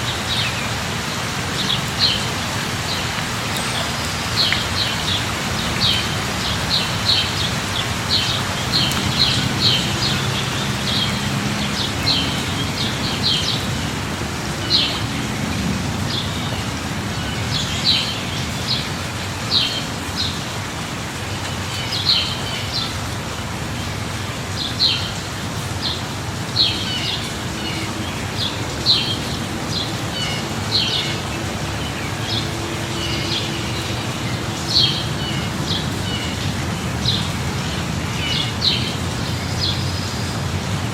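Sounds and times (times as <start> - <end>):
rain falling: 0.0 - 40.9
songbird chirping: 2.9 - 13.7.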